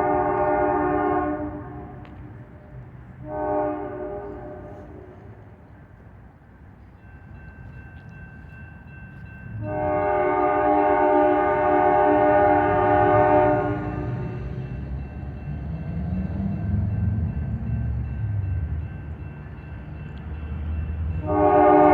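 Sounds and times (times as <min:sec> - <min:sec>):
locomotive air horn chord: 0:00.0 - 0:02.2, 0:03.2 - 0:05.4, 0:09.6 - 0:14.5, 0:21.2 - 0:21.9
diesel locomotive rumble: 0:00.0 - 0:21.9.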